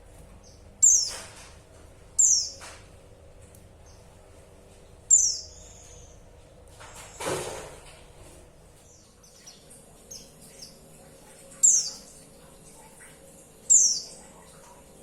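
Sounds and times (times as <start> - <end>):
bird chirping: 0.4 - 1.2, 2.2 - 2.7, 5.1 - 6.2, 11.5 - 12.1, 13.7 - 14.3.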